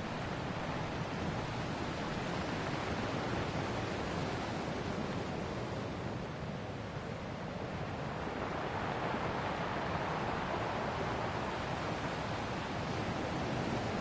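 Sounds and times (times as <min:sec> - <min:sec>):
ocean waves washing on shore: 0:00.0 - 0:14.0.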